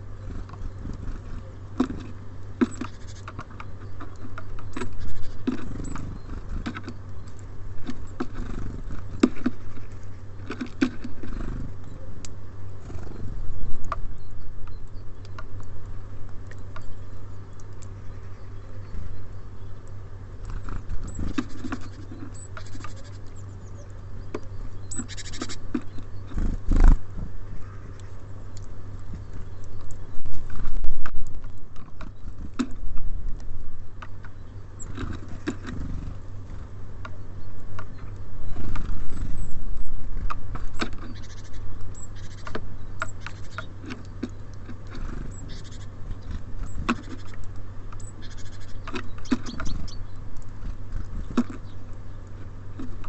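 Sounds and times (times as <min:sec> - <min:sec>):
birds pecking at seed: 0:00.0 - 0:53.0
steady low hum: 0:00.0 - 0:53.0.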